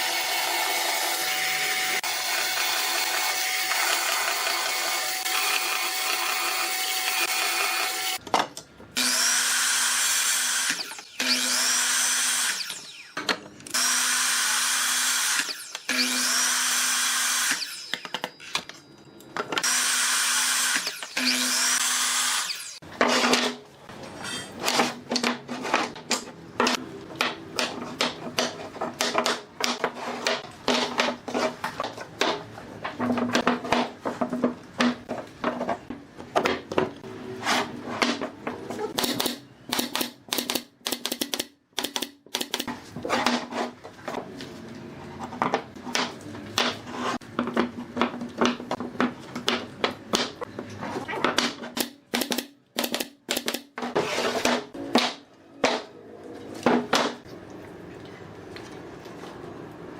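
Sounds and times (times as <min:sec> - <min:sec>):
power tool whirring: 0:09.0 - 0:18.1, 0:19.6 - 0:22.8.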